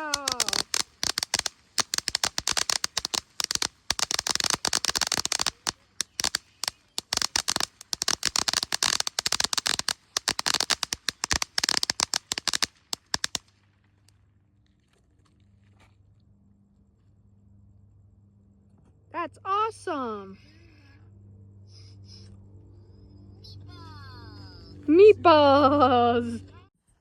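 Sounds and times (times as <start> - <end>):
firework crackling: 0.0 - 14.2.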